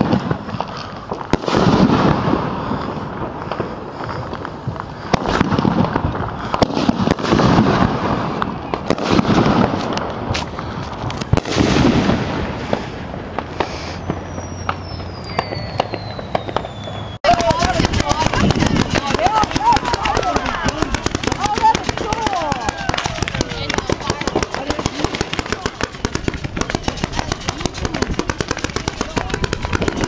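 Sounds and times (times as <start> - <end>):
fireworks bangs and pops: 0.0 - 30.0
fireworks crackling: 0.0 - 30.0.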